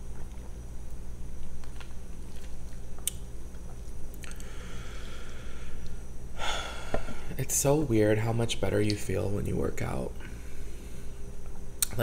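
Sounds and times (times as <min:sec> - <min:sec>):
soft chewing: 0:00.0 - 0:04.5
steady low hum: 0:00.0 - 0:12.0
sharp mouth clicks: 0:04.1 - 0:04.5, 0:11.8 - 0:12.0
breathy hiss: 0:04.2 - 0:07.7, 0:10.1 - 0:11.4
loud breath: 0:04.3 - 0:07.3.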